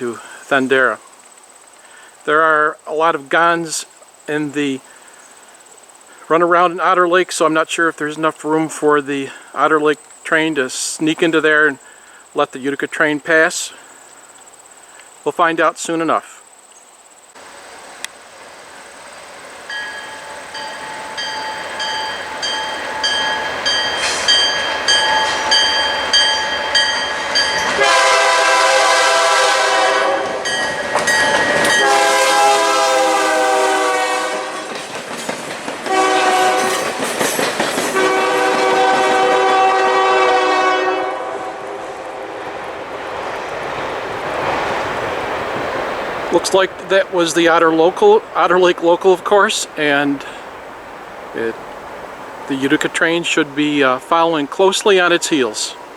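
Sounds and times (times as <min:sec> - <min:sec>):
train passing: 0:17.3 - 0:55.9
warning bell ringing: 0:19.7 - 0:27.8, 0:30.4 - 0:31.9
locomotive air horn: 0:24.0 - 0:34.8, 0:35.9 - 0:37.1, 0:37.9 - 0:42.4.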